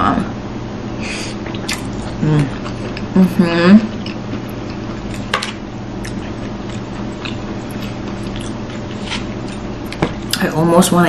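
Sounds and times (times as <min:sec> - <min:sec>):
steady low hum: 0:00.0 - 0:11.0
mouth-closed chewing: 0:01.5 - 0:03.2, 0:06.0 - 0:10.4.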